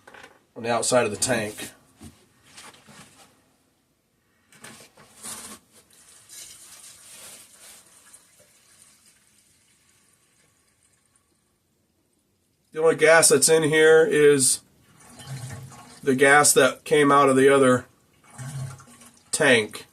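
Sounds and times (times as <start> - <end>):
gasoline pouring into tank: 5.9 - 11.6, 14.9 - 16.1, 18.2 - 19.5.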